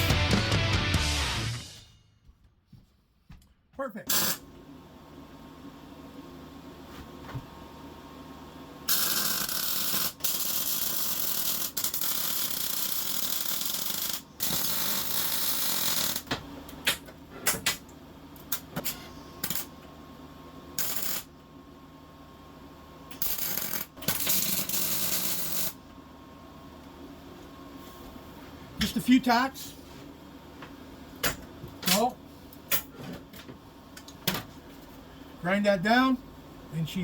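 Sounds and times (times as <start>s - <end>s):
welding arc crackling: 8.9s - 16.3s, 20.8s - 21.3s.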